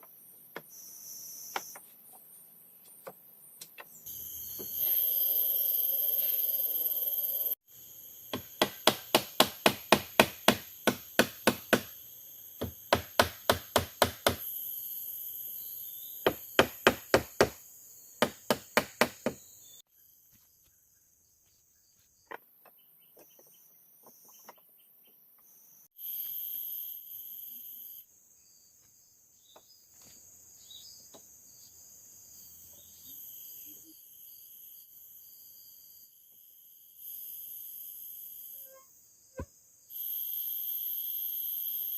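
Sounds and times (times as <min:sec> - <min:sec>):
insects chirring: 0:00.0 - 0:41.9
tool striking wood: 0:08.3 - 0:12.0, 0:12.6 - 0:14.4, 0:16.2 - 0:17.6, 0:18.2 - 0:19.4.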